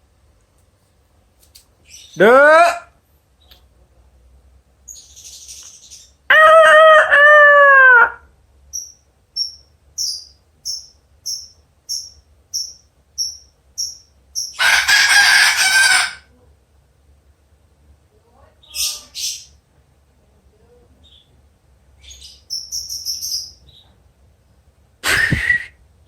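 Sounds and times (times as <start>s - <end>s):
harsh loud squawk: 2.0s - 2.9s, 14.4s - 16.3s
cockatoo imitating rooster crow: 6.3s - 8.3s, 14.6s - 16.3s.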